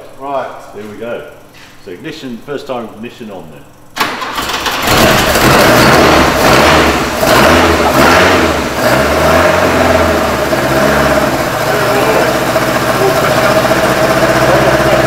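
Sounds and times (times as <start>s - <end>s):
car engine revving: 4.0s - 15.0s.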